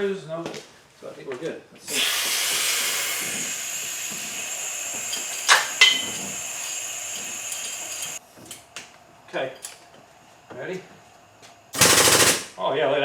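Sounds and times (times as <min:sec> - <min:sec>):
steady hiss: 0:01.9 - 0:08.2.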